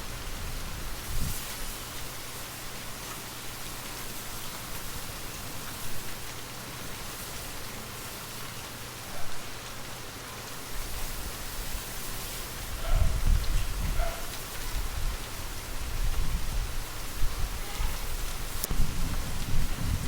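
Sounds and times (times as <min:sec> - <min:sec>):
steady rainfall: 0:00.0 - 0:20.0.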